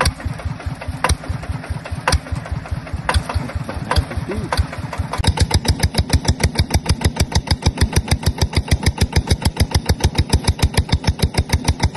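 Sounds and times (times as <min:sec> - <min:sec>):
diesel engine chugging: 0:00.0 - 0:11.9.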